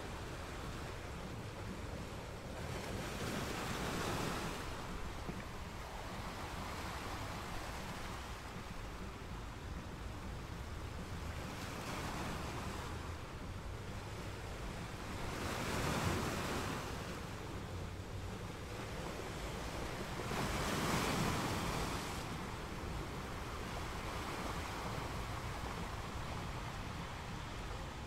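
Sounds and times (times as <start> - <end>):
rushing water: 0.0 - 28.0.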